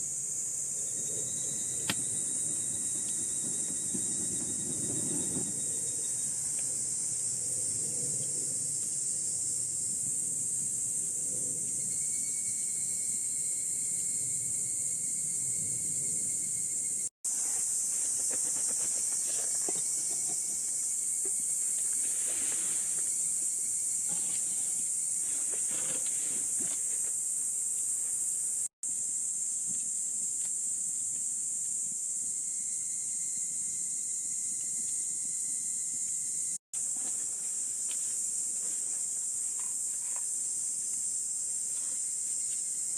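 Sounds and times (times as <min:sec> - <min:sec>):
insects chorus: 0:00.0 - 0:42.9.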